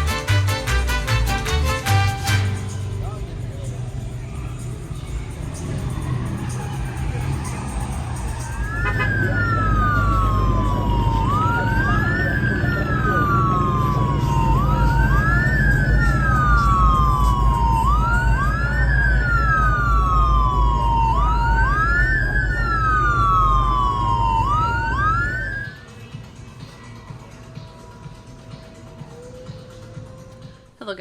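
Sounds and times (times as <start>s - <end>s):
emergency vehicle siren wailing: 0.0s - 28.4s
second siren wail: 5.0s - 25.9s.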